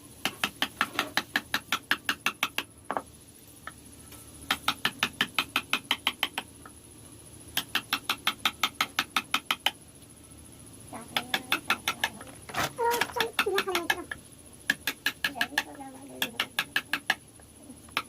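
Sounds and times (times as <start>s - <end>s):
hammer tapping chisel into wood: 0.2s - 3.0s.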